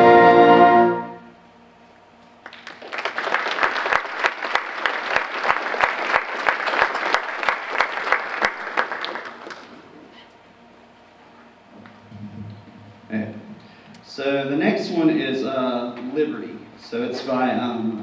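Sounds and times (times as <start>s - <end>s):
audience applauding: 2.4s - 10.0s.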